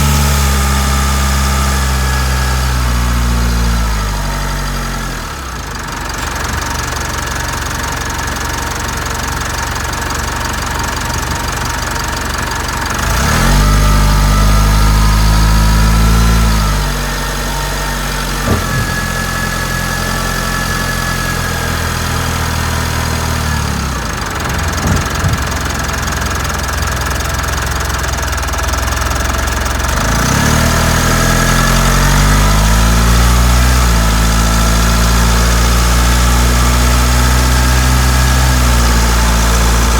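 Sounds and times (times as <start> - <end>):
diesel engine running: 0.0 - 39.9
steady engine whine: 14.1 - 29.3, 36.7 - 39.9.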